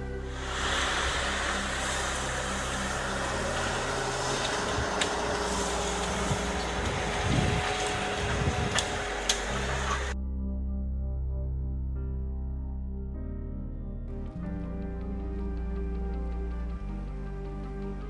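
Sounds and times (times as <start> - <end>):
heavy machine engine running: 0.0 - 10.2.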